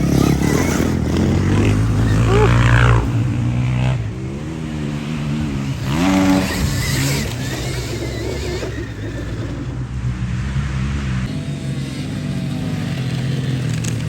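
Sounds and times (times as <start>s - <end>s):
electric motorcycle motor whining: 5.7s - 9.9s.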